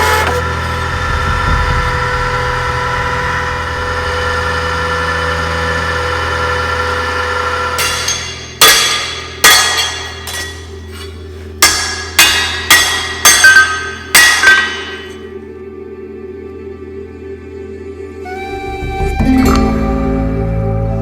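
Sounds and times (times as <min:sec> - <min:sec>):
hammer ringing on anvil: 0:07.6 - 0:15.3.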